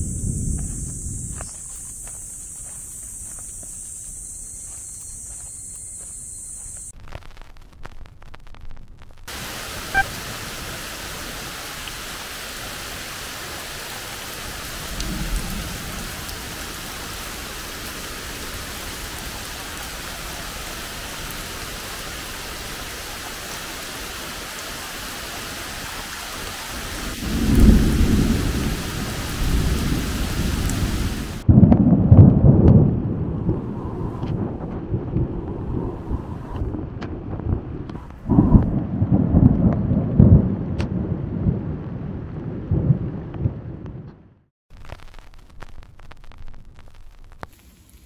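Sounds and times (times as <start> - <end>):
rumble of thunder: 0.0 - 1.6, 14.3 - 22.7, 26.7 - 44.4
heavy rain falling: 0.0 - 43.8, 44.7 - 48.0.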